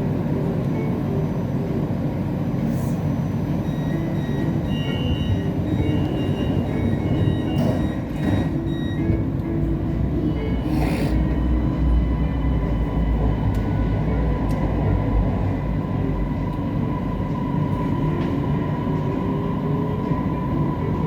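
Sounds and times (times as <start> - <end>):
train wheels rumbling: 3.4 - 21.0.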